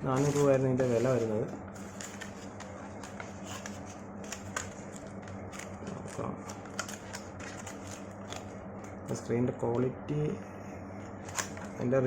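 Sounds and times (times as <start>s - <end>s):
low electrical hum: 0.0s - 12.0s
packaging rustling: 0.2s - 8.5s.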